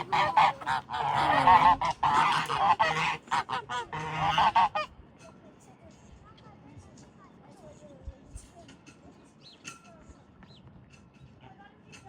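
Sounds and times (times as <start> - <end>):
waterfowl calling: 0.0 - 4.9.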